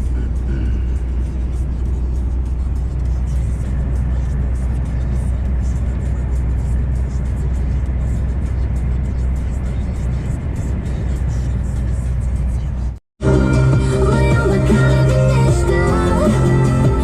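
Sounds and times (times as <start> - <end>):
truck engine drone: 0.0 - 17.0
music: 12.6 - 17.0.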